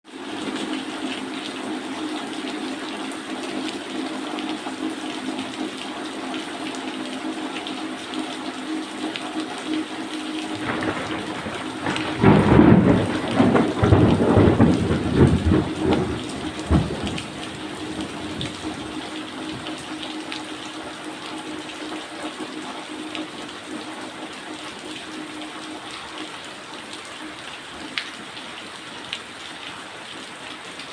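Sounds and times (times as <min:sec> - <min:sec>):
steady rain falling: 0:00.1 - 0:30.9
thunder rumbling: 0:10.6 - 0:19.9.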